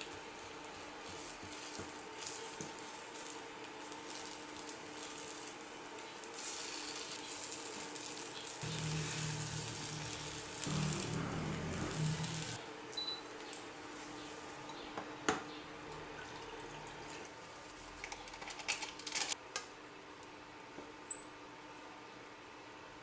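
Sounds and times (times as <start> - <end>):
food sizzling in a frying pan: 0.0 - 12.6.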